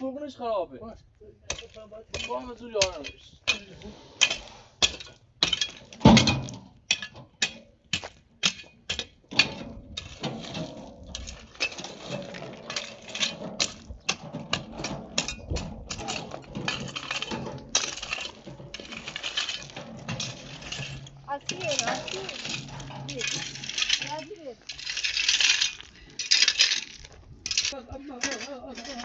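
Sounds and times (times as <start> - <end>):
hard objects knocking and clinking: 1.5 - 29.0.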